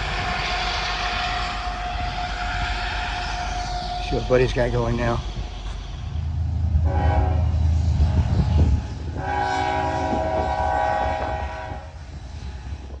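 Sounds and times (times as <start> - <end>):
locomotive engine rumble: 0.0 - 13.0
locomotive air horn blasts: 6.8 - 7.7, 9.1 - 12.0.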